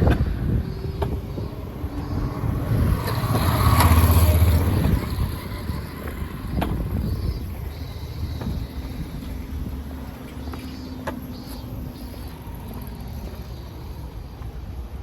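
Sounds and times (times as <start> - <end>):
vehicle passing by: 0.0 - 7.6.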